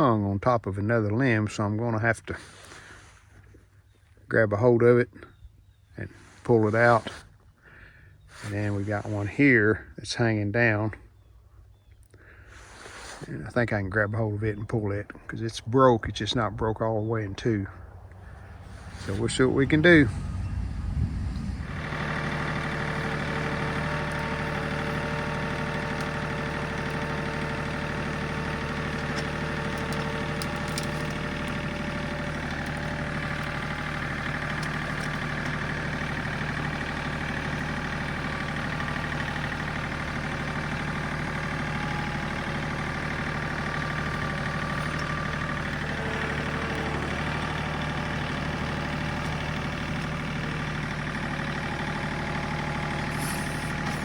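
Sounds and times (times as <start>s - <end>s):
tractor diesel engine running: 6.1s - 9.9s, 12.4s - 54.0s
high whine: 18.8s - 22.6s
faint clicks: 21.9s - 41.4s.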